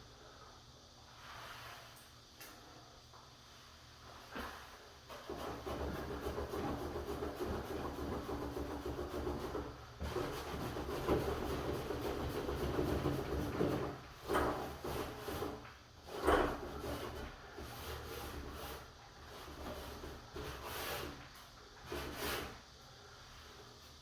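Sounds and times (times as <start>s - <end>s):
brush rubbing paint on wood: 4.4s - 14.0s.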